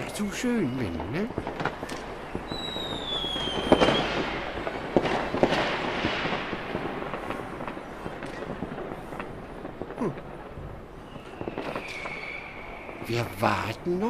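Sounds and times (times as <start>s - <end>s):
crackling firecrackers: 0.0s - 14.0s
firework bangs: 0.0s - 14.0s
firework whistle falling in pitch: 2.4s - 4.4s, 11.1s - 13.0s.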